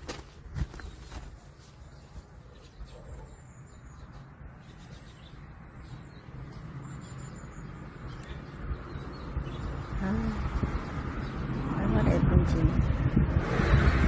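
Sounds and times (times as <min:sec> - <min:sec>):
small bird chirping: 0:00.7 - 0:11.4.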